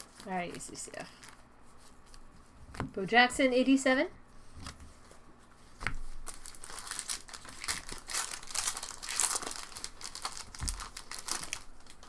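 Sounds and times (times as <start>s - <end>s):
foil wrappers crinkling and tearing: 0.0s - 1.5s, 6.0s - 12.0s.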